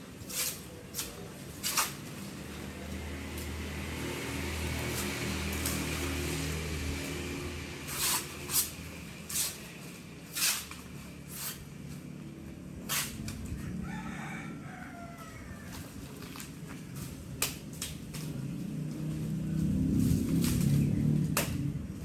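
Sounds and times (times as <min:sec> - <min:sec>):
rooster crowing: 0:13.5 - 0:16.0.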